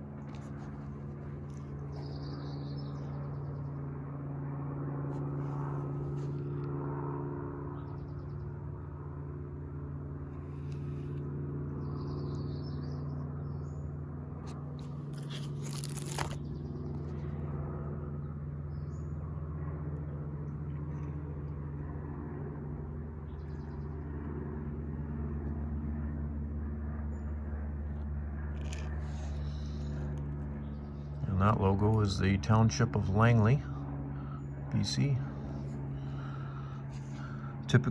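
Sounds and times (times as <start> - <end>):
low mechanical hum: 0.0 - 37.9
small birds chirping: 1.5 - 3.8, 11.7 - 13.9
brief rustle: 14.8 - 16.5.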